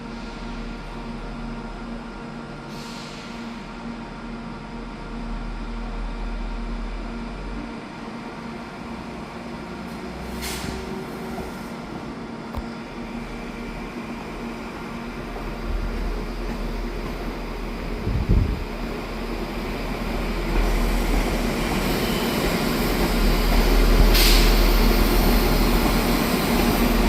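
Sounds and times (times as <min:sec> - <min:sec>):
train running hum and rumble: 0:00.0 - 0:27.0
air hiss: 0:24.0 - 0:24.9.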